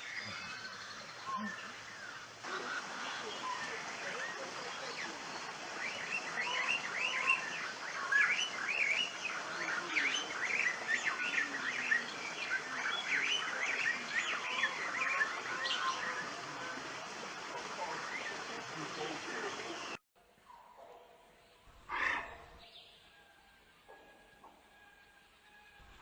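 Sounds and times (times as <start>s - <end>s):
birds chirping and chattering: 0.0s - 20.0s.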